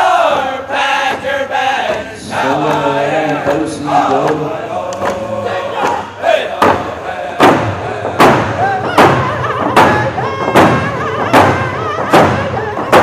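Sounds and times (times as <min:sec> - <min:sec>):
people singing: 0:00.0 - 0:13.0
hand drum beat: 0:06.6 - 0:13.0.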